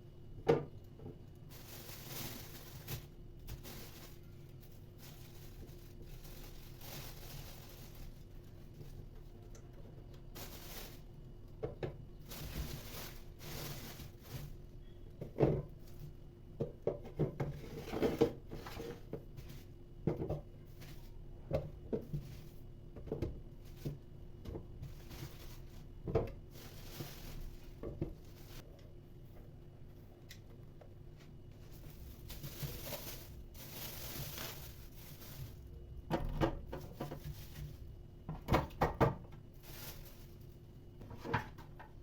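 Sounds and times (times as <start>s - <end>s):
kitchen items knocking and clattering: 16.6s - 19.4s, 20.0s - 20.5s, 31.8s - 39.9s.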